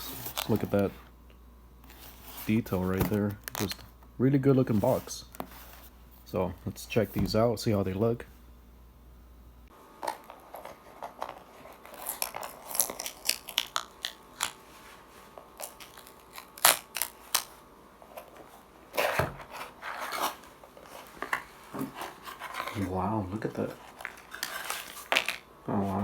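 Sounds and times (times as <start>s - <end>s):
packaging crinkling and rustling: 0.0s - 0.8s, 10.0s - 25.5s.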